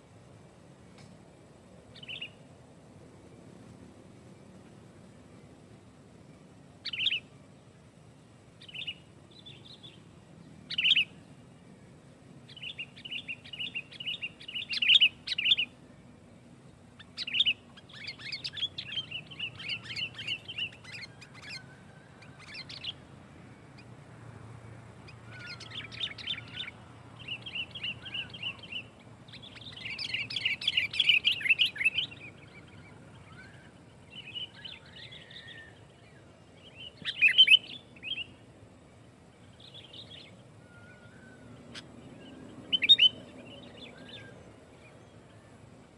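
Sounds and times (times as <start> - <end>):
bird chattering calls: 25.3 - 33.6.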